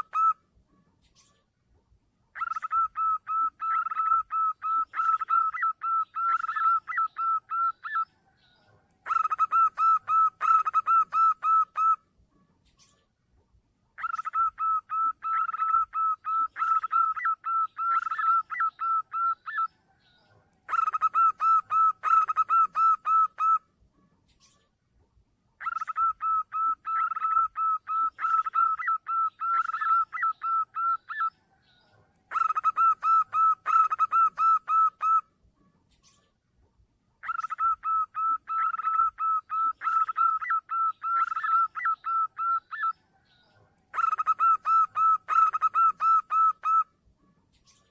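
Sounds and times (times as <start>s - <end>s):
dove staccato cooing: 0.0s - 0.4s, 2.4s - 8.2s, 9.0s - 12.0s, 14.0s - 19.7s, 20.3s - 23.6s, 25.6s - 35.2s, 37.2s - 43.2s, 43.8s - 46.9s.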